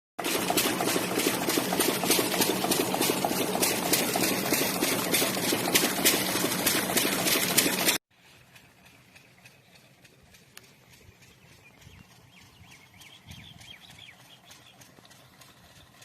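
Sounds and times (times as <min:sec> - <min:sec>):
water rushing and splashing: 0:00.2 - 0:08.0.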